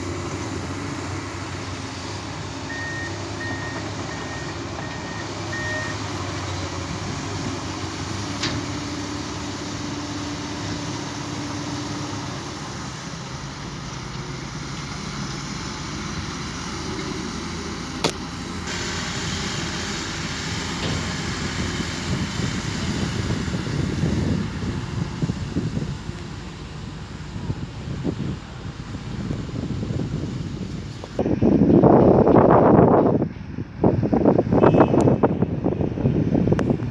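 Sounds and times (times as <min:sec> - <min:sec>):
construction vehicle engine running: 0:00.0 - 0:36.9
reversing alarm beeping: 0:02.7 - 0:06.1.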